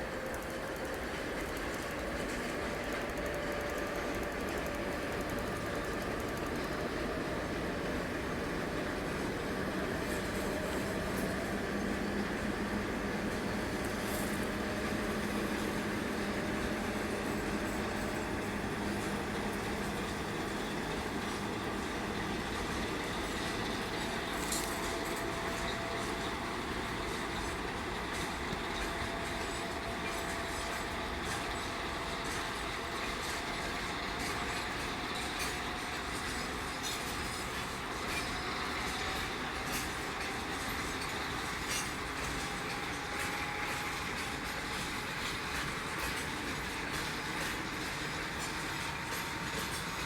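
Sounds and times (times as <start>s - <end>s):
diesel locomotive engines running: 0.0s - 50.0s
wheels clicking over rails: 0.0s - 50.0s
freight wagons rumbling: 5.9s - 50.0s.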